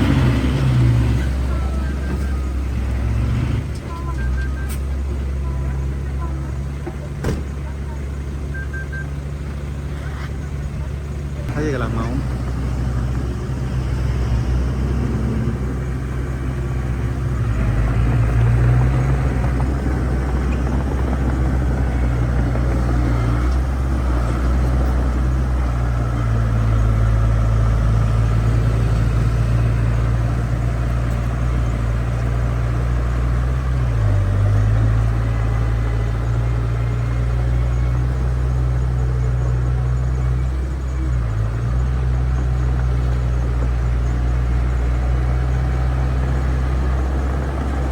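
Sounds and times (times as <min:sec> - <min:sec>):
heavy diesel engine running: 0:00.0 - 0:47.9.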